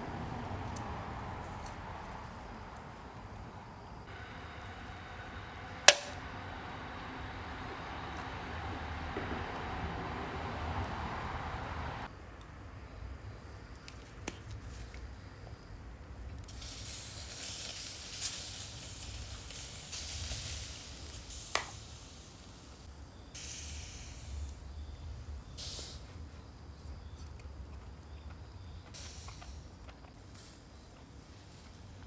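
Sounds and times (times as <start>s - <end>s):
charcoal fire hissing: 0.0s - 12.1s, 16.5s - 24.8s
sharp pop: 5.9s - 6.2s.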